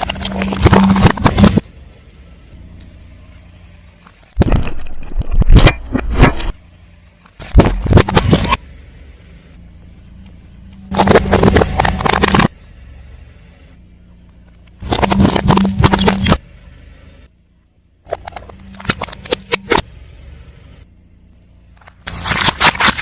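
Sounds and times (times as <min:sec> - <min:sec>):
tyre crushing brittle objects: 0:00.0 - 0:01.6, 0:10.9 - 0:12.5, 0:21.8 - 0:23.0
engine hum: 0:00.0 - 0:23.0.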